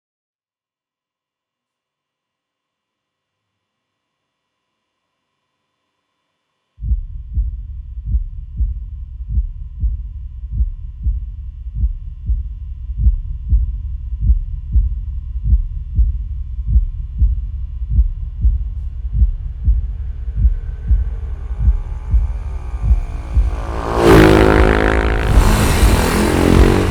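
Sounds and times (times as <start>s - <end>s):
heartbeat thudding: 6.8s - 26.9s.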